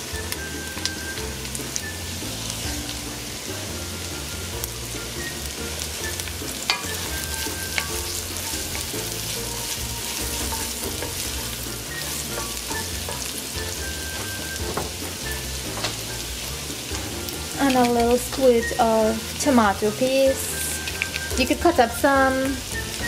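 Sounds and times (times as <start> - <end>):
vegetables sizzling in hot oil: 0.0 - 23.0
wooden spoon stirring: 5.9 - 19.3.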